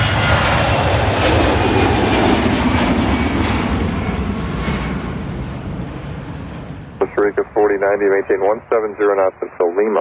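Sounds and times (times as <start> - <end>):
aircraft roaring past: 0.0 - 8.9.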